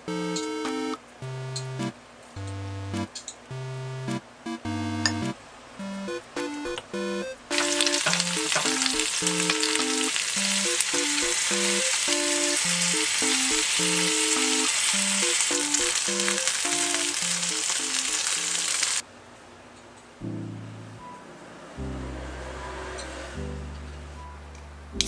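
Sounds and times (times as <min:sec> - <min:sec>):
food sizzling in hot oil: 0:07.5 - 0:19.0.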